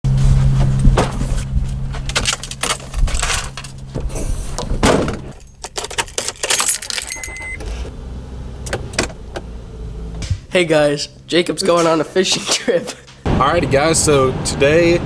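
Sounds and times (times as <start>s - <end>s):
objects clinking and rattling: 1.6s - 7.6s.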